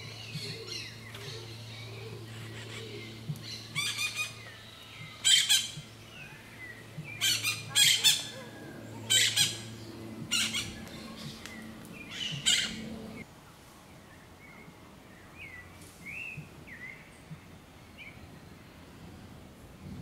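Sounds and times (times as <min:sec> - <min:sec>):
birds squawking harshly: 0:00.0 - 0:13.2
faint low hum: 0:00.0 - 0:20.0.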